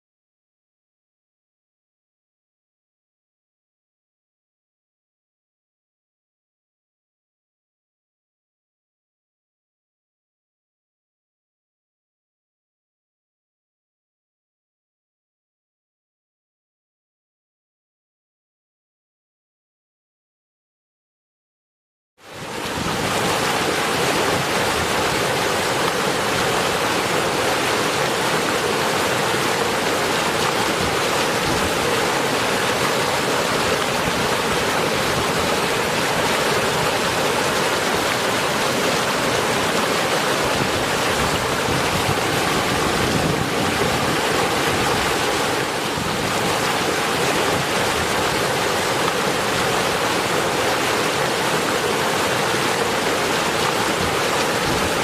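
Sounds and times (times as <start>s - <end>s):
heavy rain: 22.3s - 55.0s.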